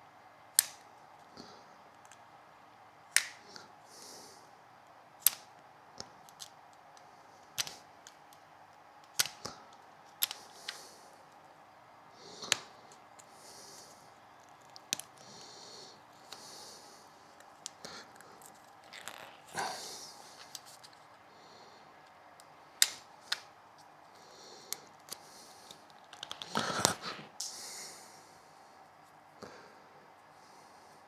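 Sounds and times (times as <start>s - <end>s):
hand tools clicking on wire: 0.6s - 0.8s, 3.1s - 3.4s, 5.2s - 10.8s, 12.4s - 16.5s, 22.0s - 23.9s.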